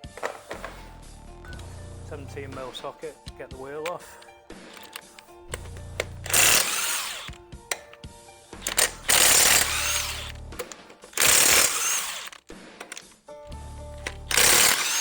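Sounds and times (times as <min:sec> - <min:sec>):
background music: 0:00.0 - 0:15.0
impact wrench hammering: 0:03.3 - 0:08.0, 0:08.6 - 0:13.2, 0:14.0 - 0:15.0.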